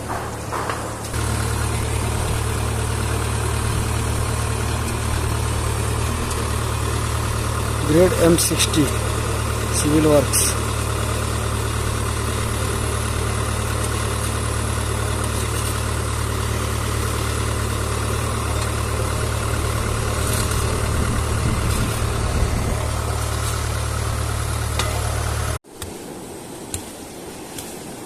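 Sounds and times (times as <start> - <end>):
engine humming: 0.0 - 25.6.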